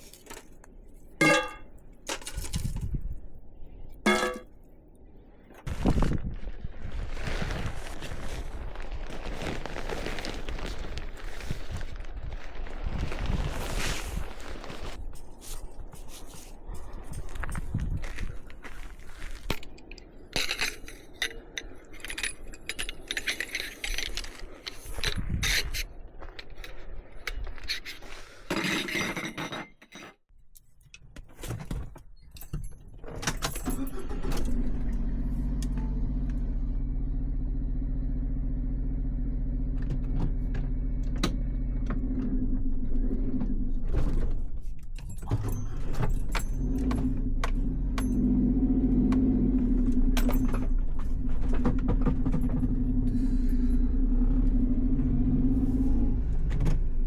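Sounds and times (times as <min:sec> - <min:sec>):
keys and gear clinking: 0:15.0 - 0:26.8, 0:32.2 - 0:34.6, 0:44.7 - 0:48.3
small van engine humming: 0:33.8 - 0:44.6, 0:45.3 - 0:57.0.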